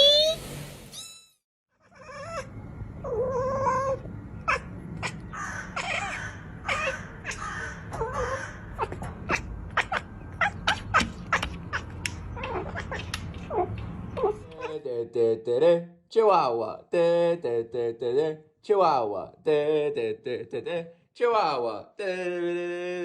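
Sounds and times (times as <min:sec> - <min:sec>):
cat meowing and yowling: 0:01.8 - 0:14.4
low hum: 0:02.1 - 0:15.7.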